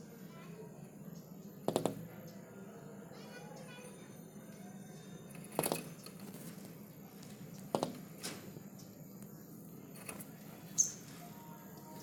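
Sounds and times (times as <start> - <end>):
bird tapping on window: 1.7 - 2.0, 7.6 - 8.4
high bird chirp: 10.4 - 12.0.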